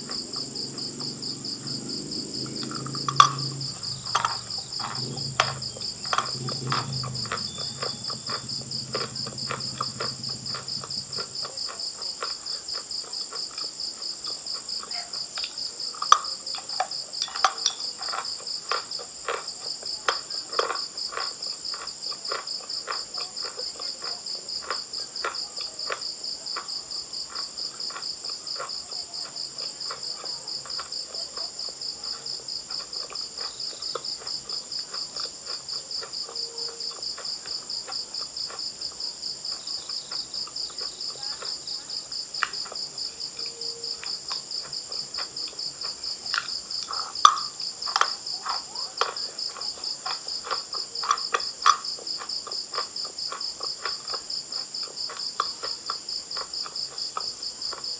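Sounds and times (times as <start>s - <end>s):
crickets chirping: 0.0s - 57.9s
crunching chalk: 0.0s - 57.9s.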